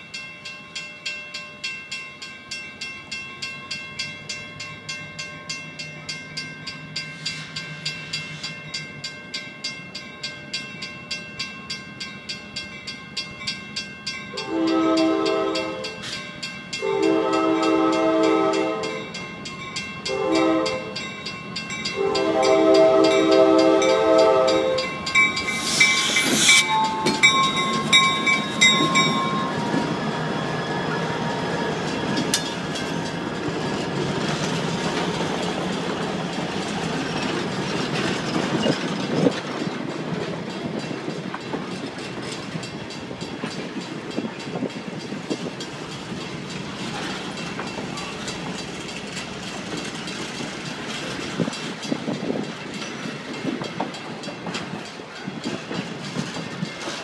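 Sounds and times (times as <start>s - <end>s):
crossing bell clanging: 0.0s - 57.0s
train rumbling past: 1.0s - 57.0s
locomotive air horn blasts: 14.3s - 16.0s, 16.8s - 19.1s, 20.1s - 21.0s, 22.0s - 25.1s
wheels clicking over rail joints: 19.2s - 57.0s
air hiss: 25.1s - 27.6s.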